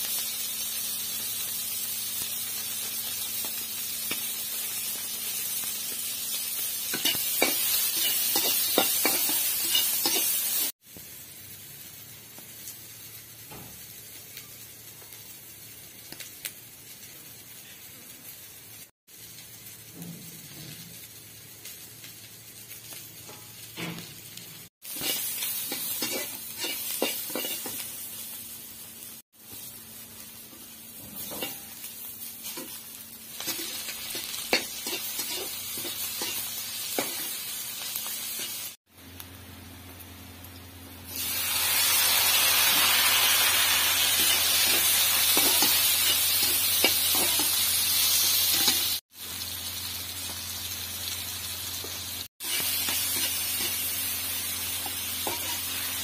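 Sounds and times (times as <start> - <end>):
vegetables sizzling in hot oil: 0.0 - 56.0
metal spatula scraping a pan: 6.9 - 10.6, 24.9 - 27.8, 31.0 - 31.8, 33.4 - 37.3, 44.0 - 47.6, 48.2 - 49.0, 54.8 - 55.8.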